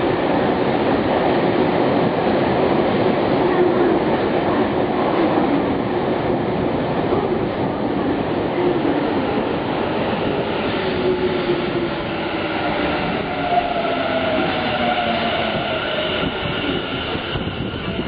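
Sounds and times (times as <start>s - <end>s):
train wheel noise: 7.1s - 18.0s.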